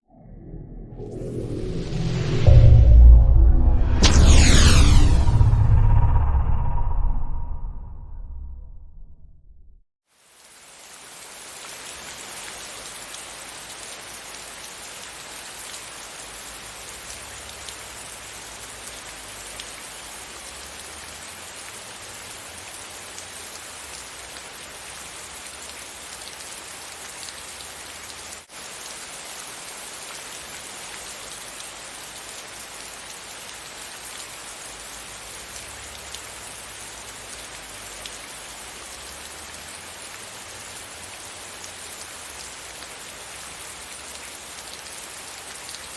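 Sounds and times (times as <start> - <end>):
steady rain falling: 10.0 - 45.9.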